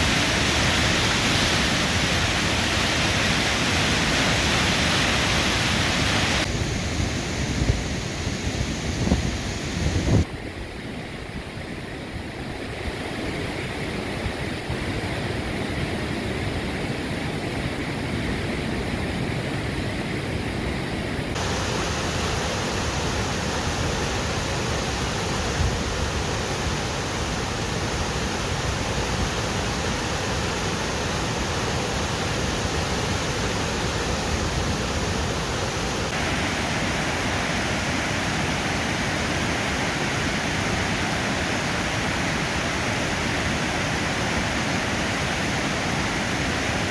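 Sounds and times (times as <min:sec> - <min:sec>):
waterfall rushing: 0:00.0 - 0:10.2, 0:21.3 - 0:46.9.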